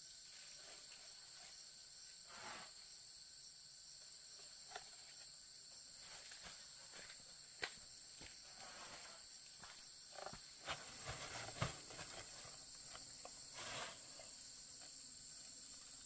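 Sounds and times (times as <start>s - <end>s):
high-pitched insect chorus: 0.0s - 16.0s
soft rustle: 8.4s - 9.5s, 10.2s - 15.0s.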